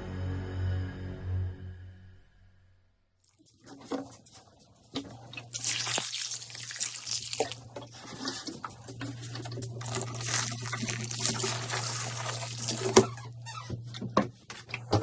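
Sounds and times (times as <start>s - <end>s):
tap water running: 5.0s - 13.4s.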